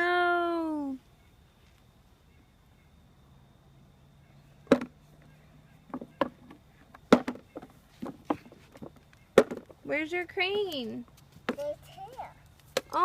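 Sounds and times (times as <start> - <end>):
toy vehicles knocking in dirt: 4.7 - 5.0, 5.9 - 9.8.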